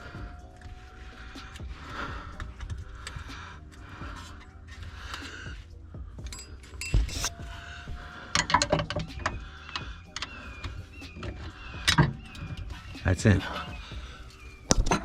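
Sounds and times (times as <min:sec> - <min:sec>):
faint music: 0:00.0 - 0:15.0
metallic knocks on suspension parts: 0:08.3 - 0:09.4.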